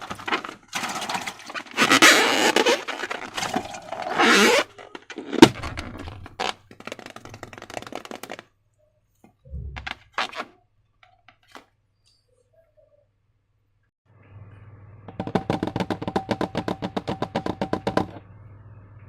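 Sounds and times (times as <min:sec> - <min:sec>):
crackly clicking and scraping: 0:00.0 - 0:08.5.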